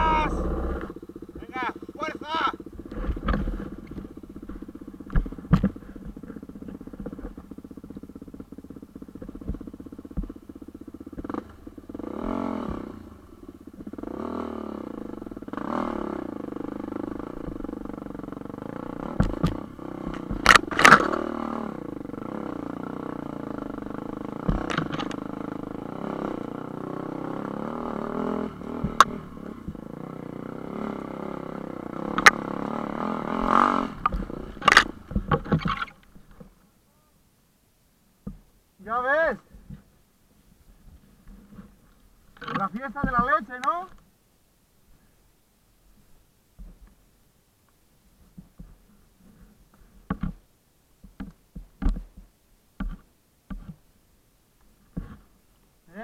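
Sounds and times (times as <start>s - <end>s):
vehicle engine revving uphill: 0.0s - 36.0s
sharp knocks and clatter: 2.8s - 8.5s, 19.1s - 21.2s, 51.0s - 53.8s.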